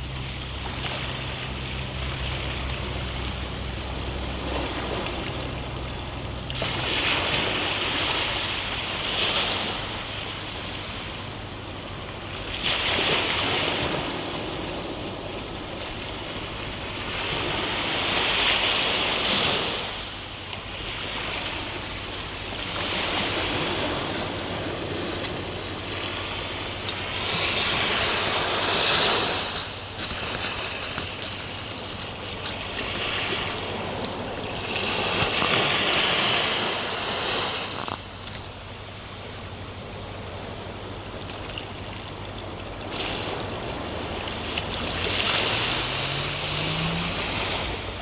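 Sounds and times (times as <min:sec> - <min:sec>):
ocean waves breaking on shore: 0:00.0 - 0:48.0.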